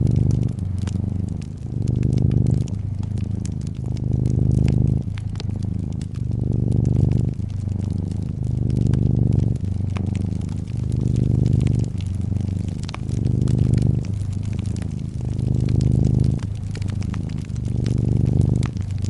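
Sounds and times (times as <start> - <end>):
cat purring: 0.0 - 19.0
fireplace crackling and popping: 0.0 - 19.0.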